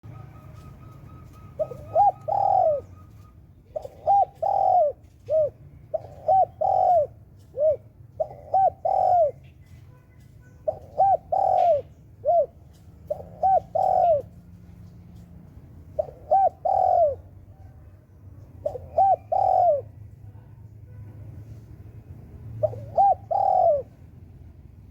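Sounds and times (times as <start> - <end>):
dove cooing: 0.0 - 9.8, 10.6 - 15.2, 15.8 - 17.6, 18.4 - 20.1, 22.4 - 24.1.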